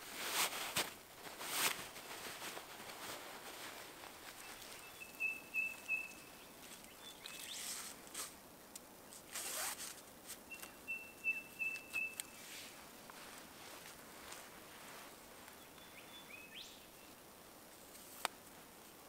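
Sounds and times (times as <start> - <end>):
rope swishing around tree trunk: 0.0 - 8.4
bird calling: 4.3 - 7.8, 10.5 - 12.4, 15.6 - 17.2.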